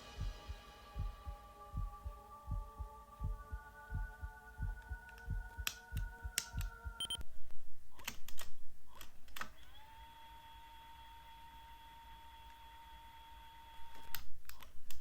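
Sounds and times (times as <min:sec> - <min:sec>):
low thumping beat: 0:00.0 - 0:07.2
steady whistle-like tone: 0:00.0 - 0:07.2.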